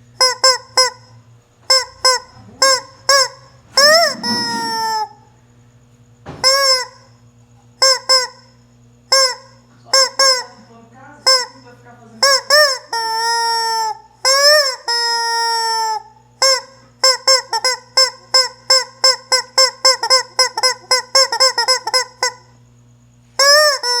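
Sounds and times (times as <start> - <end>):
rubber chicken toy squawking: 1.7 - 5.2, 9.1 - 9.4, 12.2 - 22.4, 23.4 - 24.0.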